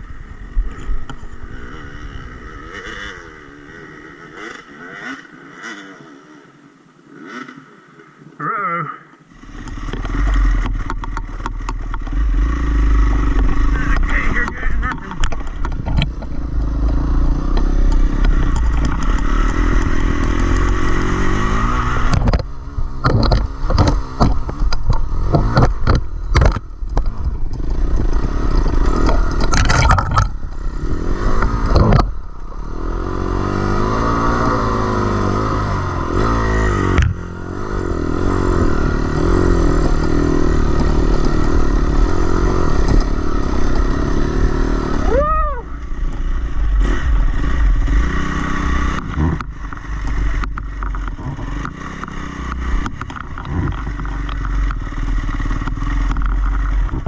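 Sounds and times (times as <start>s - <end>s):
dirt bike engine revving: 0.0s - 57.0s
clattering knocks and scrapes: 13.3s - 20.7s.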